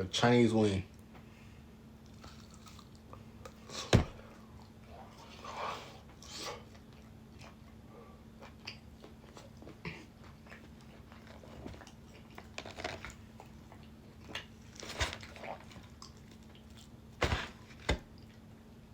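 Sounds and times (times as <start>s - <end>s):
faint steady hum: 0.0s - 18.9s
person chewing food: 2.0s - 16.9s.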